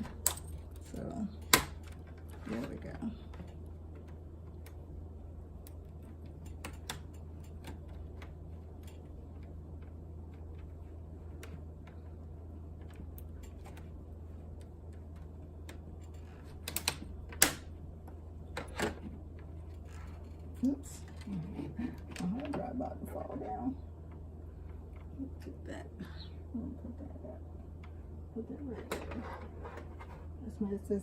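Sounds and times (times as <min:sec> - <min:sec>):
small clicks and taps: 0:00.0 - 0:21.3
steady low hum: 0:00.0 - 0:31.0.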